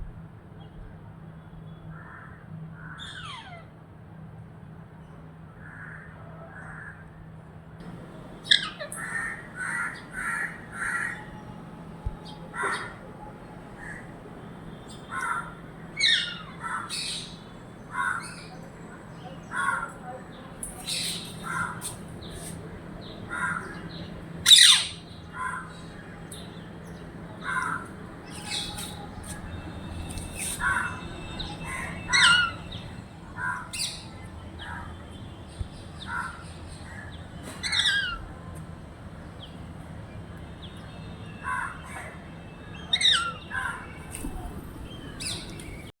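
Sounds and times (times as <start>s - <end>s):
birds squawking and chirping: 2.9s - 3.6s, 7.8s - 38.3s, 42.8s - 45.9s.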